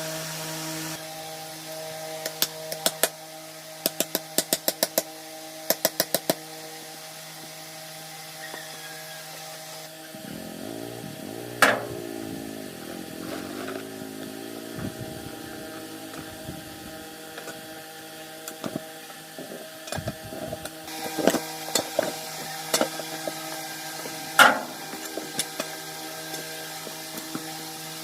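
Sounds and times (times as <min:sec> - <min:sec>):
motor humming: 0:07.7 - 0:28.0.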